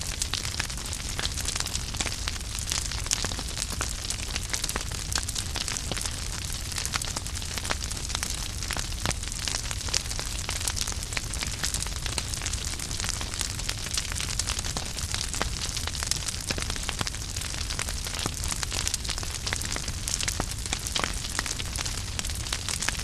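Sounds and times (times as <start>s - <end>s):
low rumble of flames: 0.0s - 23.0s
wood fire crackling: 0.0s - 23.0s.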